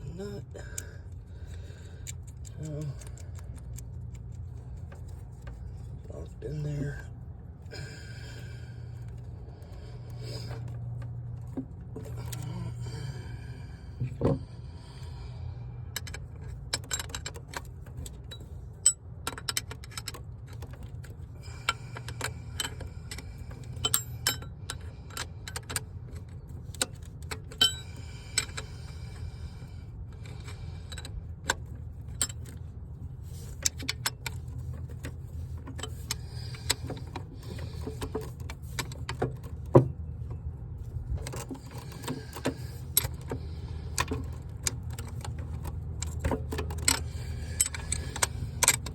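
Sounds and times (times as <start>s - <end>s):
steady low hum: 0.0s - 48.9s
ratchet wrench clicking: 0.6s - 5.9s, 15.9s - 29.6s, 33.3s - 39.7s, 41.2s - 48.9s.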